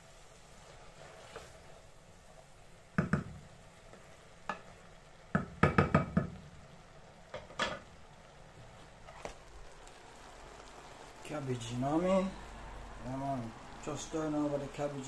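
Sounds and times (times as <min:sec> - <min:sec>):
faint steady hiss: 0:00.0 - 0:15.0
spoon knocking against pot: 0:03.0 - 0:03.4, 0:05.3 - 0:06.4.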